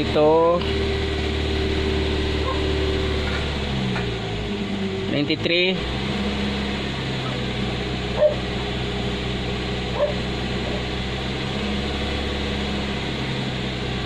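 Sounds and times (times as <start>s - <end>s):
car engine idling: 0.0s - 14.0s
dog yips: 2.4s - 2.7s, 8.2s - 8.4s, 10.0s - 10.2s.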